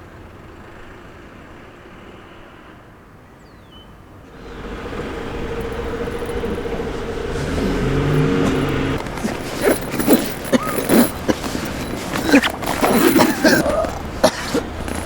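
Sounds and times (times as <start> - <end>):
vehicle engine humming: 4.3 - 15.0.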